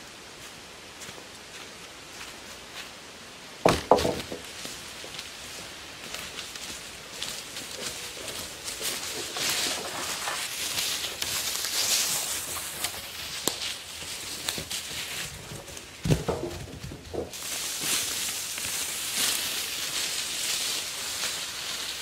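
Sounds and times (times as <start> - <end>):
footsteps in dry leaves: 0.0 - 3.5, 4.3 - 22.0
heavy wooden knock: 3.6 - 4.5
wooden branches dragged: 3.6 - 5.0, 6.4 - 22.0.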